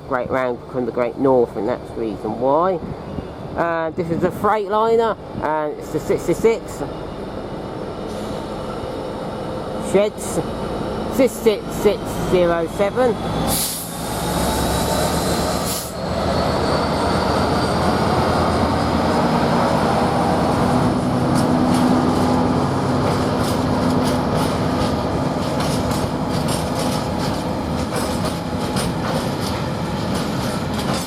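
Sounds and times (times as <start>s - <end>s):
locomotive engine drone: 0.0s - 31.0s
wagon wheels clicking on rails: 23.0s - 31.0s.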